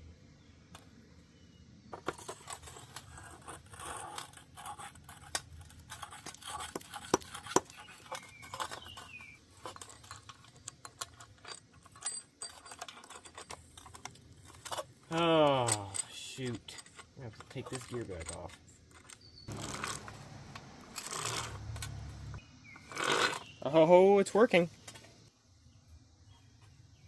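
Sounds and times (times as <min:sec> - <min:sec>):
metal parts clicking and clinking: 0:01.9 - 0:23.4.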